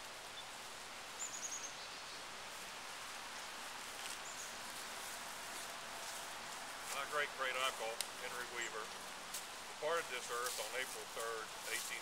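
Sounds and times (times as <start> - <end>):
air and leaves hissing: 0.0 - 12.0.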